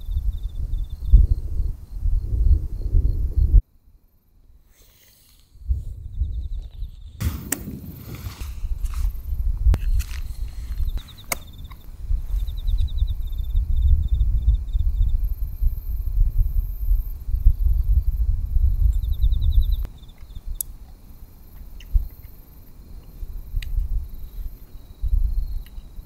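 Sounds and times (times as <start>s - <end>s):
insects trilling: 4.1s - 26.0s
low rumble: 5.6s - 11.0s
sharp clicks: 11.0s - 11.8s.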